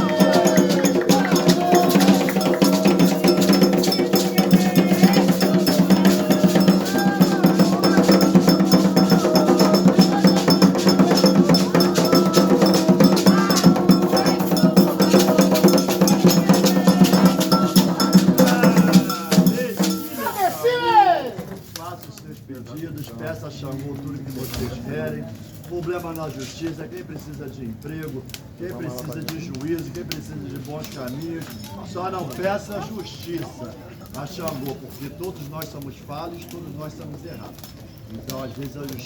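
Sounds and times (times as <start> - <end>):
metal bell rung rapidly: 0.0 - 20.4.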